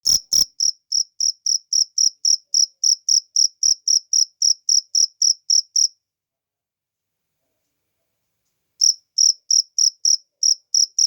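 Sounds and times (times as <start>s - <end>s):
cricket chirping: 0.1s - 6.0s, 8.8s - 11.0s.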